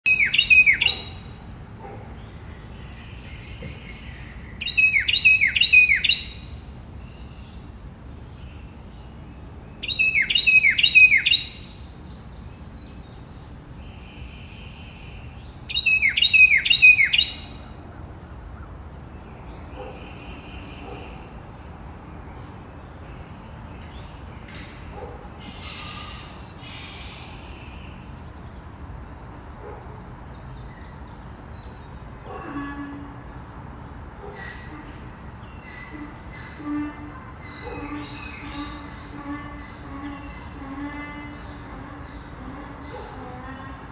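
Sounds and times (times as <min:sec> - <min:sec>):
bird singing downward notes: 0:00.1 - 0:01.3, 0:02.8 - 0:07.6, 0:09.8 - 0:12.2, 0:15.4 - 0:17.6
steady high hiss: 0:00.1 - 0:43.9
softer bird calls: 0:23.8 - 0:28.1.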